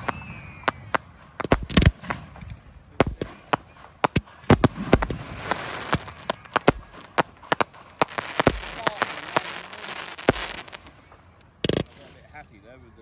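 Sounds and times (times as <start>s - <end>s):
faint falling whistle: 0.0s - 1.0s
fireworks bursting with bangs: 0.0s - 12.3s
firework hiss: 3.0s - 10.9s.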